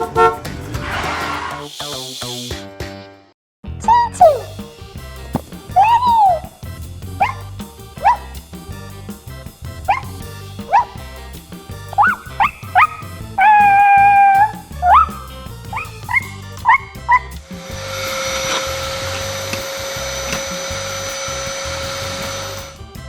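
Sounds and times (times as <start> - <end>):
dog whining: 5.7 - 6.6, 7.2 - 8.4, 9.9 - 11.0, 12.0 - 17.4
small dog barking: 7.2 - 7.4, 8.0 - 8.3, 9.9 - 10.1, 10.7 - 11.0, 12.0 - 15.2
vacuum cleaner humming: 17.5 - 22.8.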